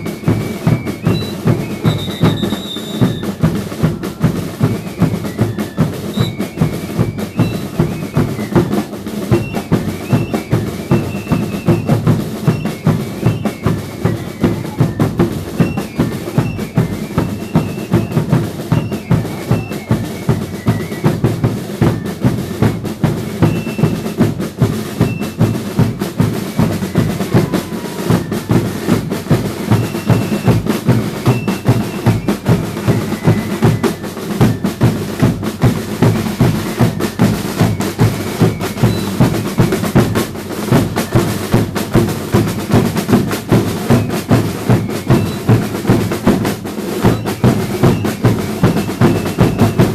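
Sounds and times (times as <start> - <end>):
bass and snare drums beating: 0.0 - 49.9.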